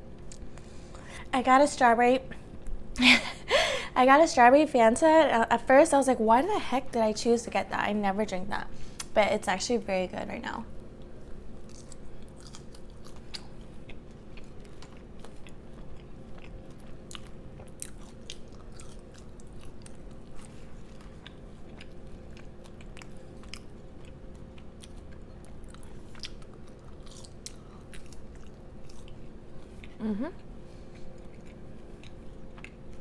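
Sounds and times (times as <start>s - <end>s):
low electrical hum: 0.0s - 33.0s
chewing and biting: 11.0s - 30.0s, 30.7s - 33.0s.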